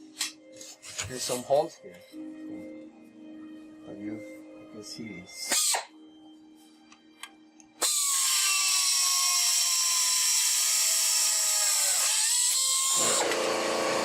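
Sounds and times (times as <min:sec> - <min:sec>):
pneumatic drill whining: 0:07.8 - 0:14.0.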